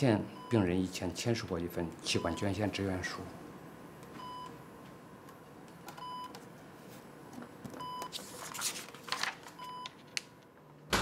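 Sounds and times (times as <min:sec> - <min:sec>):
patient monitor beeping: 0:00.3 - 0:00.9, 0:02.1 - 0:06.4, 0:07.8 - 0:08.1
paper rustling: 0:08.1 - 0:10.2.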